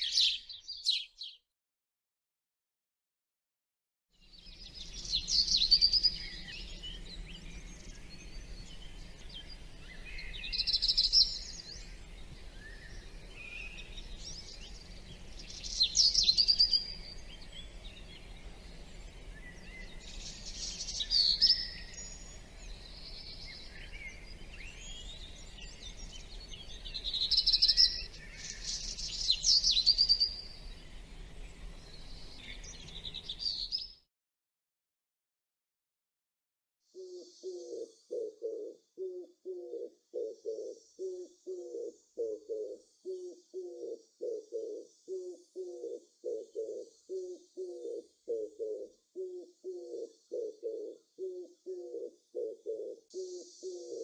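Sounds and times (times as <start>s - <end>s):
faint bird chirps: 0.0s - 1.4s, 4.2s - 34.0s, 36.9s - 54.0s
songbird singing: 0.0s - 1.4s, 4.2s - 34.0s, 36.9s - 54.0s.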